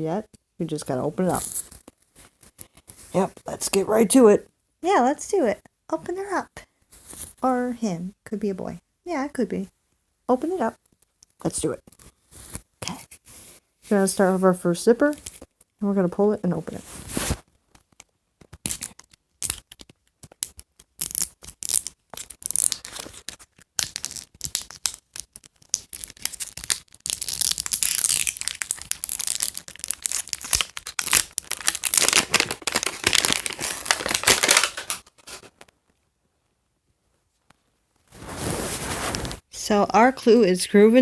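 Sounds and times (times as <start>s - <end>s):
plastic wrapping crinkling: 16.8s - 35.7s.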